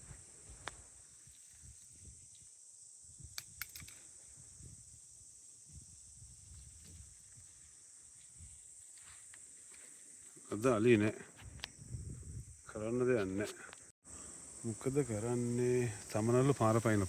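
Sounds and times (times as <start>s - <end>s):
insects droning: 0.0s - 17.0s
wind rumble on microphone: 3.0s - 3.7s, 4.3s - 7.7s, 11.4s - 12.8s
sharp clicks: 3.4s - 4.0s.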